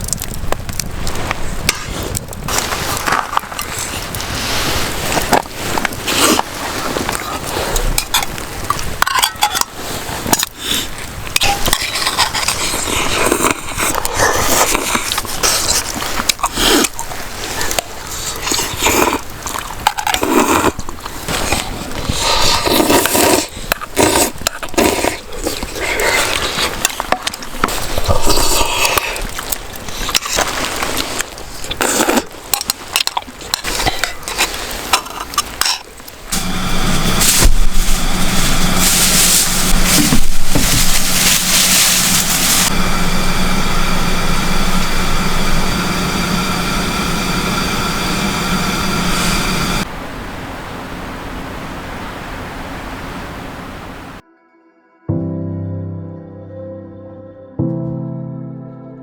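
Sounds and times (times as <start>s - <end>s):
dishes and utensils clattering: 9.0s - 9.8s.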